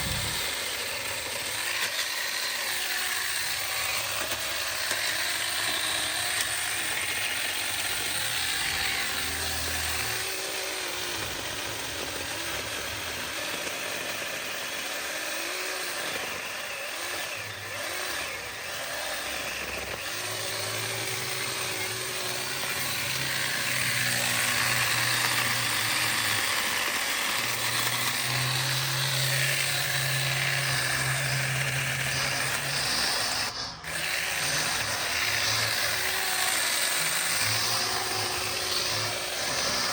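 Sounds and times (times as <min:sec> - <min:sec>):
chainsaw running: 0:00.0 - 0:39.9.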